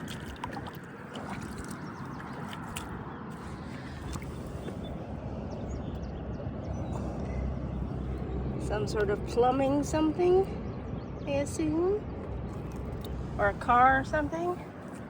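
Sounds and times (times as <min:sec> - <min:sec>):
small water splashes: 0:00.0 - 0:05.1, 0:12.3 - 0:13.3
river water sloshing around legs: 0:00.0 - 0:05.8, 0:12.3 - 0:15.0.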